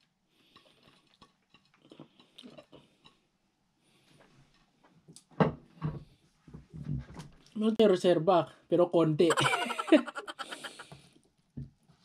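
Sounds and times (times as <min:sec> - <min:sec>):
person chewing food: 0:00.0 - 0:03.3.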